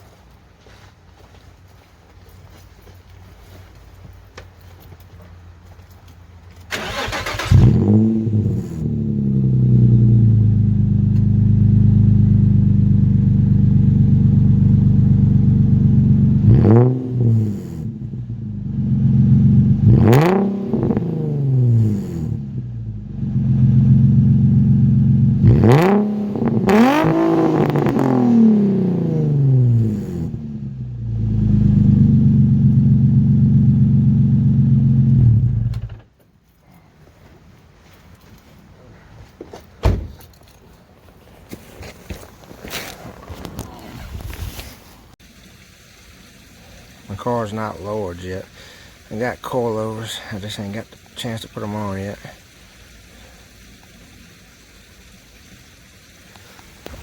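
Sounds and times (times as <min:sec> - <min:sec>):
car engine idling and revving: 0:06.7 - 0:36.0.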